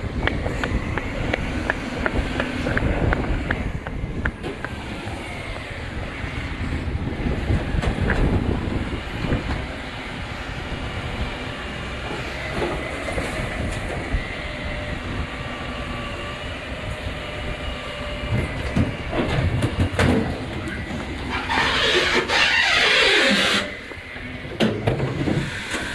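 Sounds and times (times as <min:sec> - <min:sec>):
rubbish truck rumbling: 0:00.0 - 0:25.9
faint mechanical squealing: 0:20.6 - 0:24.0.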